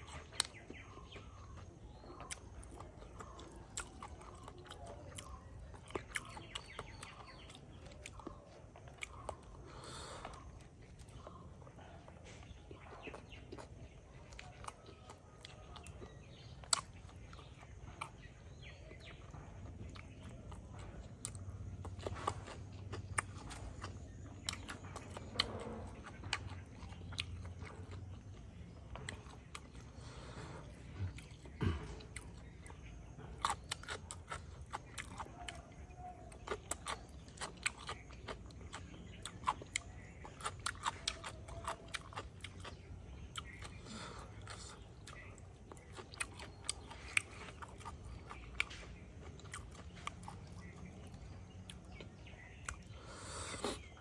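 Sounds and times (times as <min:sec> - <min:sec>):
chewing and crunching food: 0:00.0 - 0:54.0.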